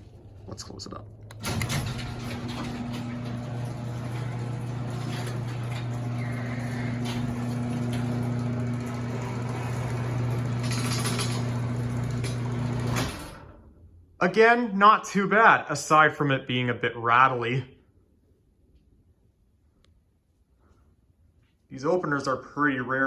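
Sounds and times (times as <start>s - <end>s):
garage door opener motor humming: 1.3s - 13.9s.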